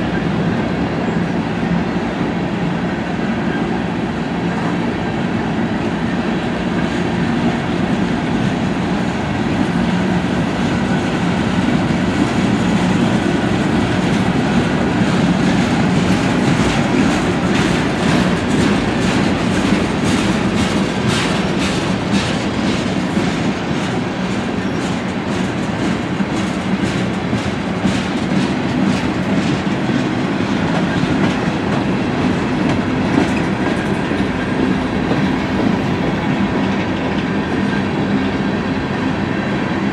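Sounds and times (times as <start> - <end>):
train wheels clicking over rail joints: 8.2 - 39.0.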